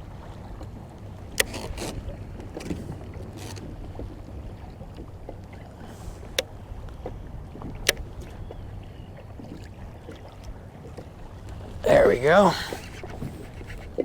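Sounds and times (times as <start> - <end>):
water washing around kayak: 0.0 - 14.0
wind: 0.0 - 14.0
faint ticks: 12.6 - 14.0.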